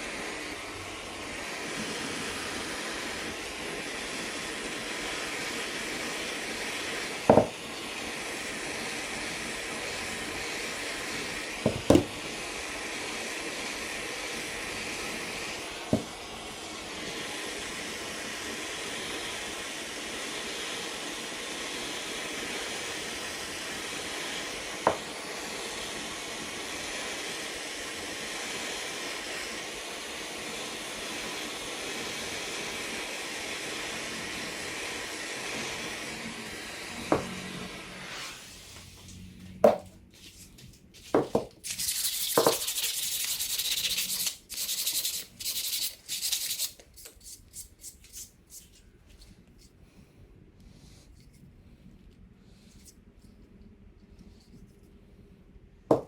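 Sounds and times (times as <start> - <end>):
steady rushing hiss: 12.2 - 48.8.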